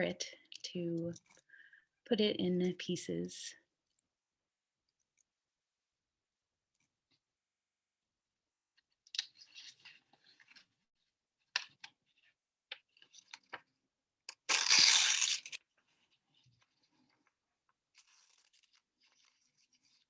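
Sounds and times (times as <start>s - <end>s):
paper tearing: 14.4s - 15.7s.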